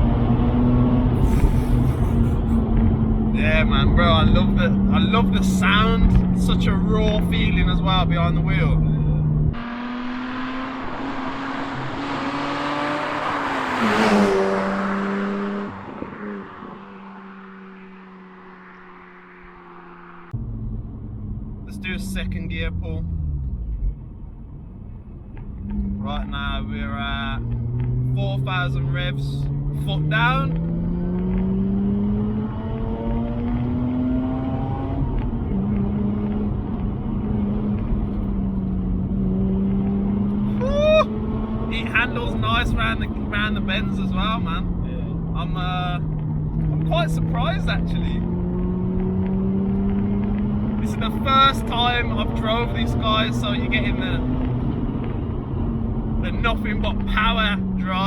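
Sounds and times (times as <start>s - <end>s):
rotary engine accelerating: 0.0s - 58.0s
car passing at speed: 9.2s - 21.6s, 30.5s - 57.9s.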